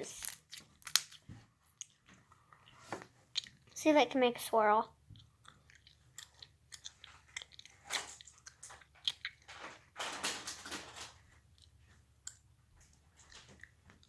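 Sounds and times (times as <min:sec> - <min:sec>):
slime squelching: 0:00.0 - 0:09.5.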